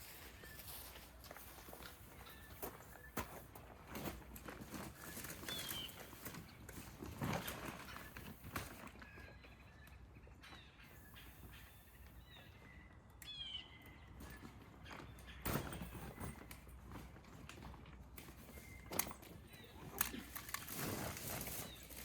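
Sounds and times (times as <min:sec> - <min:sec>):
footsteps: 0:00.0 - 0:06.2
light knocks and clatter: 0:14.2 - 0:19.4.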